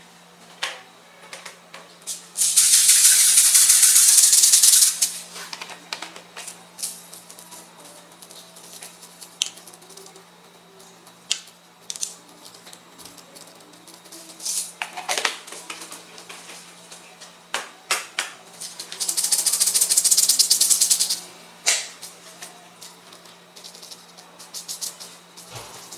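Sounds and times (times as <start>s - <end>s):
refrigeration hum: 0.0s - 25.9s.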